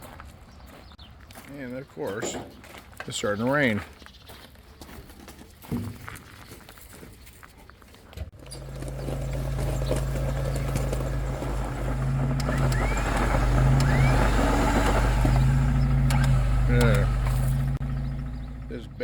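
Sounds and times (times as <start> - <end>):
electric winch motor humming: 8.4 - 19.0.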